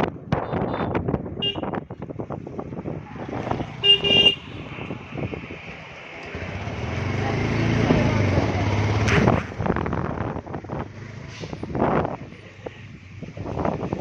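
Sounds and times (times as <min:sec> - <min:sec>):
traffic and riding noise: 0:00.0 - 0:14.0
vehicle horn honking: 0:00.4 - 0:01.8, 0:03.8 - 0:04.6.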